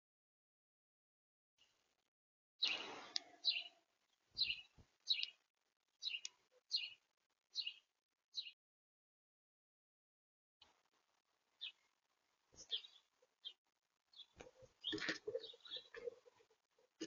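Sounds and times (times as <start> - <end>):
small bird chirping: 2.6 - 5.4, 6.0 - 8.6, 11.6 - 11.9, 12.6 - 17.0.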